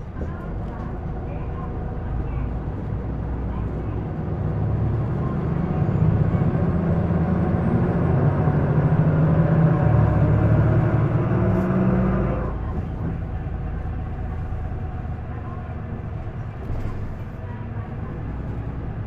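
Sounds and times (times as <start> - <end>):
bus diesel engine accelerating: 0.0 - 19.0.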